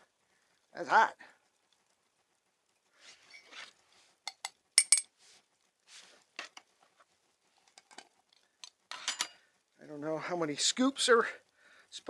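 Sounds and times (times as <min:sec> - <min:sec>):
soft rustling: 0:01.4 - 0:04.2, 0:05.1 - 0:08.6
mug and spoon clinking: 0:04.3 - 0:05.1.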